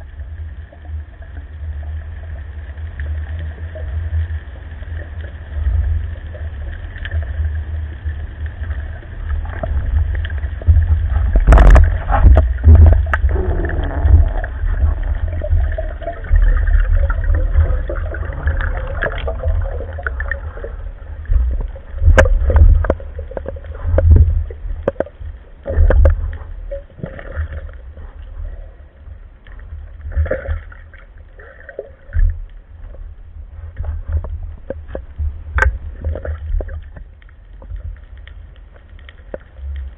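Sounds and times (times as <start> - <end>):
underwater water rumble: 0.0 - 39.9
clicks and knocks of diver gear: 9.5 - 13.3.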